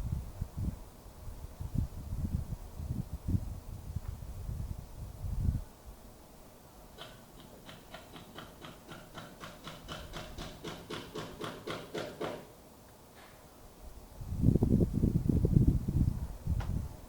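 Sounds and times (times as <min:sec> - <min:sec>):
hammer blows: 0:07.0 - 0:12.5.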